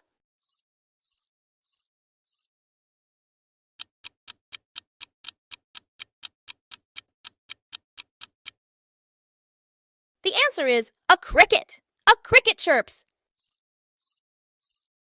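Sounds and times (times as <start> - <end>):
cricket chirping: 0.4 - 2.5, 13.4 - 14.9.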